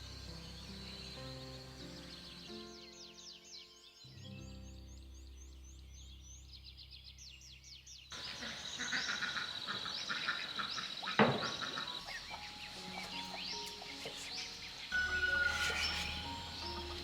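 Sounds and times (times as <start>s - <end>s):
frogs croaking chorus: 0.0s - 4.0s, 8.1s - 17.0s
rapid high chirps: 12.0s - 17.0s.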